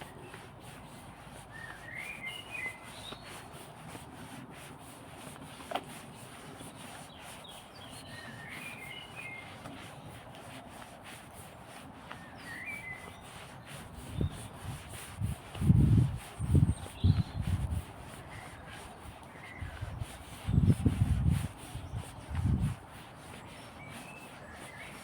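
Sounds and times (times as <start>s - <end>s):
faint outdoor background: 0.0s - 25.0s
songbird chirping: 1.5s - 3.3s, 7.1s - 10.1s, 12.1s - 14.4s.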